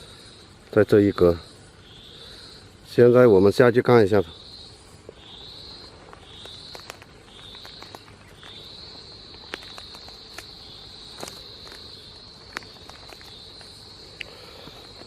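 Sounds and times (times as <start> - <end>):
insect trilling: 0.0 - 15.0
crackling footsteps: 4.8 - 15.0.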